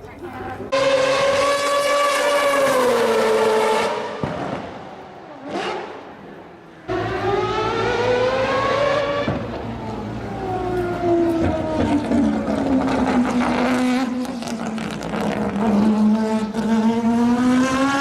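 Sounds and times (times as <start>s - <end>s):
race car engine revving: 0.7s - 18.0s.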